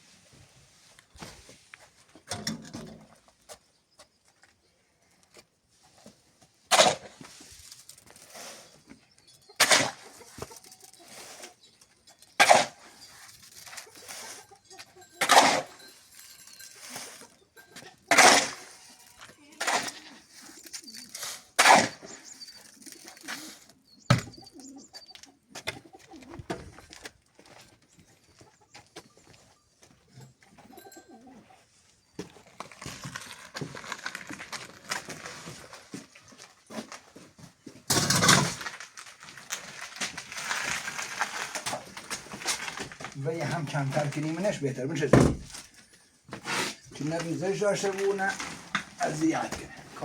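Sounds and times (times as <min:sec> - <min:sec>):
tools scraping wet cement: 0:06.7 - 0:24.3, 0:37.9 - 0:50.0.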